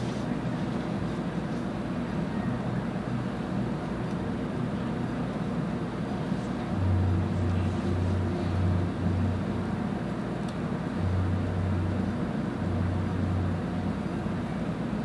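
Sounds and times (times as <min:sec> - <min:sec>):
low mechanical hum: 0:00.0 - 0:15.0
steady rushing noise: 0:04.5 - 0:15.0.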